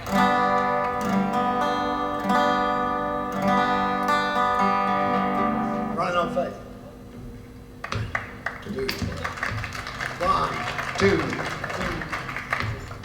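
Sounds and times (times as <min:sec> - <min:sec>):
acoustic guitar chord strummed: 0:00.0 - 0:07.7.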